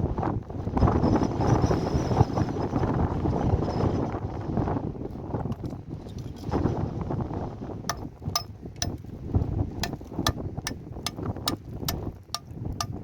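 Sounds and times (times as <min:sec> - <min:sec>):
wind buffeting microphone: 0:00.0 - 0:13.0
sharp ringing taps: 0:07.9 - 0:09.0.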